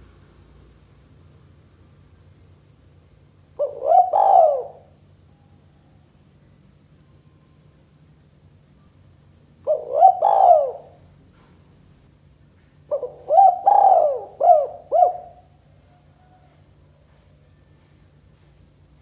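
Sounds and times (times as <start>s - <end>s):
dove cooing: 3.6s - 5.0s, 9.6s - 11.5s, 12.9s - 16.4s.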